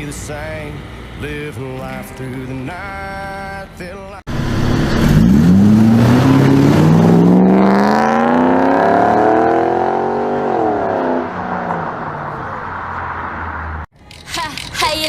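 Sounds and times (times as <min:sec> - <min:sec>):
car engine accelerating: 0:04.3 - 0:13.9.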